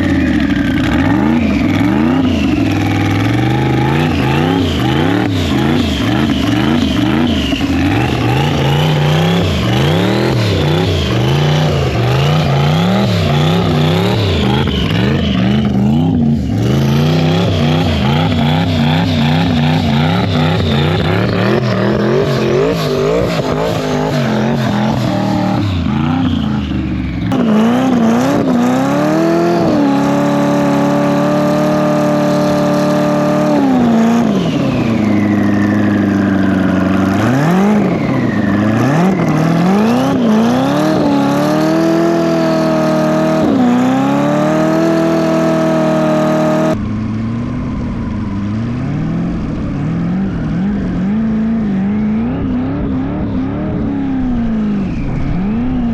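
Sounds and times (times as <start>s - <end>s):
engine revving: 0.0s - 55.9s.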